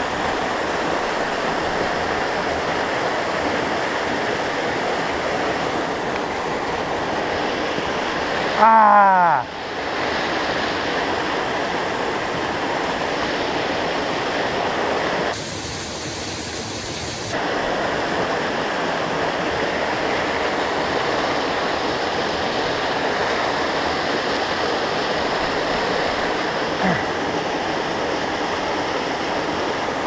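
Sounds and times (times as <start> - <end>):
waterfall rushing: 15.4 - 17.4.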